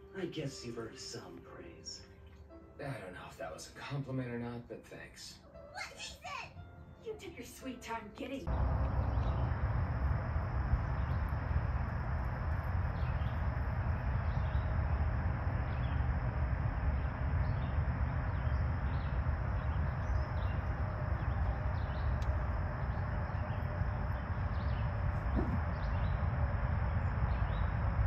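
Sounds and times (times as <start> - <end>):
low rumble: 8.4 - 28.0.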